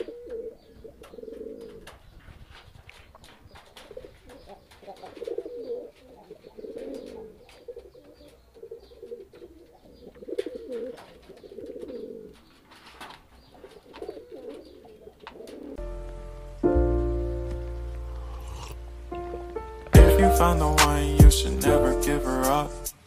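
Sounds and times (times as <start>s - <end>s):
pigeons cooing: 0.0s - 15.8s.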